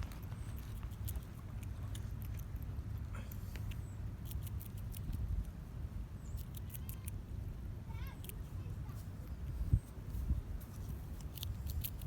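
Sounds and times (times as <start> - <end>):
squirrel crunching popcorn: 0.0 - 5.6, 6.2 - 7.3, 10.6 - 12.0
wind rumble on microphone: 4.7 - 12.0.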